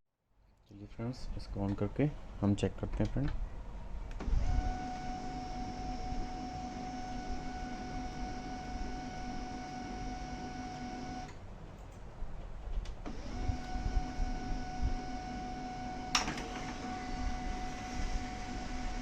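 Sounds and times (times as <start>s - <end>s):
printer motor whine: 4.2s - 11.4s, 13.0s - 19.0s.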